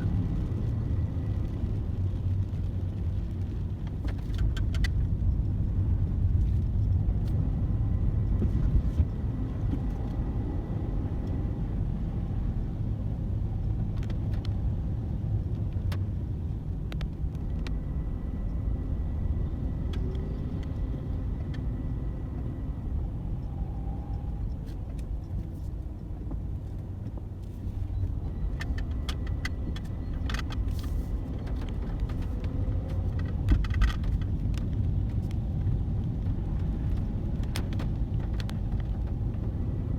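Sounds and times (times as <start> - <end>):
car rumbling on the road: 0.0 - 39.9
light clicks and rattles: 24.1 - 39.6.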